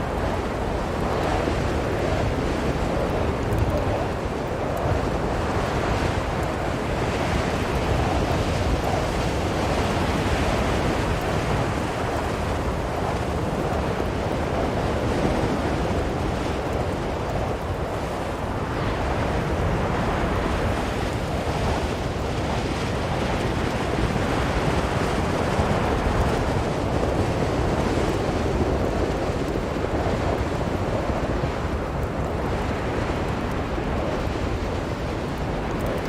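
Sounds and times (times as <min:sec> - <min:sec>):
blizzard wind blowing: 0:00.0 - 0:36.0.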